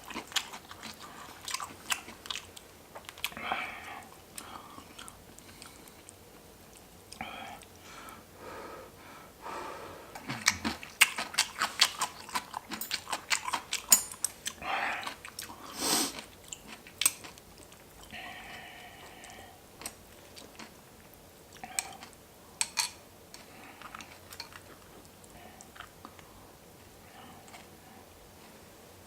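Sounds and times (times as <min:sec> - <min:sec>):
wet chewing with mouth smacks: 0:00.0 - 0:03.4, 0:10.2 - 0:22.2.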